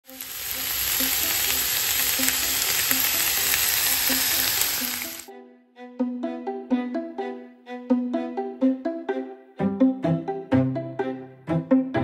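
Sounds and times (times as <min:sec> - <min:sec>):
food sizzling in a frying pan: 0:00.0 - 0:05.3
plucked-string music: 0:00.1 - 0:12.0.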